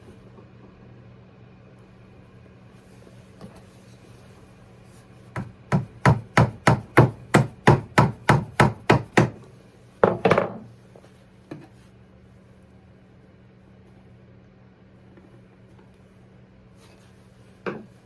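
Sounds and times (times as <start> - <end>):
hammer tapping nail into wood: 5.4 - 9.4.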